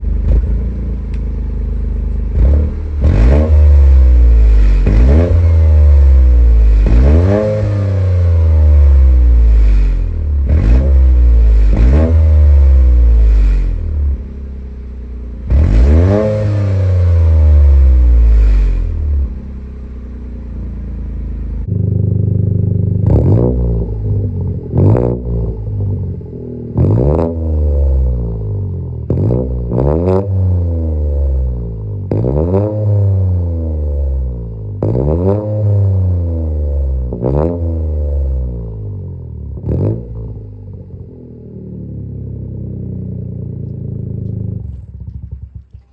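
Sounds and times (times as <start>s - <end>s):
car engine revving: 0.0s - 45.9s
sharp throttle blips: 2.3s - 14.2s.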